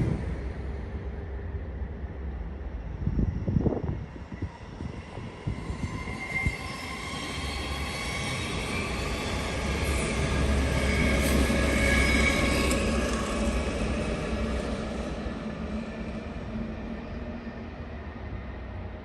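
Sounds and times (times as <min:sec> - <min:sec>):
train rumbling: 0:00.0 - 0:19.0
high squealing from train: 0:03.0 - 0:19.0.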